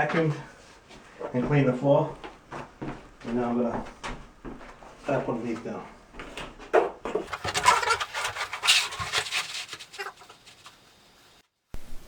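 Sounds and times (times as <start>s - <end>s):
plastic panels crackling and rattling: 7.2s - 10.8s.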